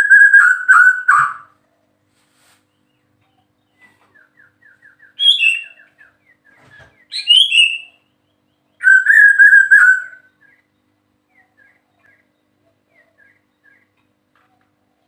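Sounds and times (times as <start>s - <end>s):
bird singing whistled phrases: 0.0s - 1.5s, 4.2s - 6.2s, 7.1s - 8.0s, 8.8s - 10.6s.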